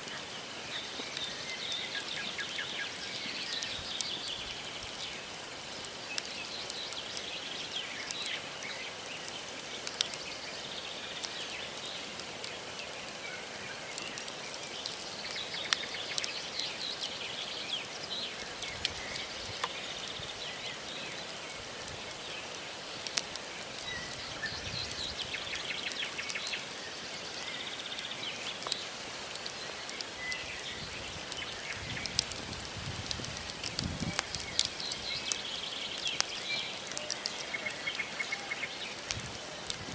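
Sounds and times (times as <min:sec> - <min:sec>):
campfire logs crackling: 0:00.0 - 0:39.9
small birds chirping: 0:00.0 - 0:39.9.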